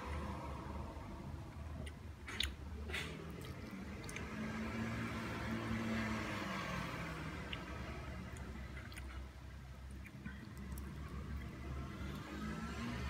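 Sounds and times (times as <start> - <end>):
chewing soft fruit: 1.6 - 13.0
low steady hum: 6.8 - 13.0.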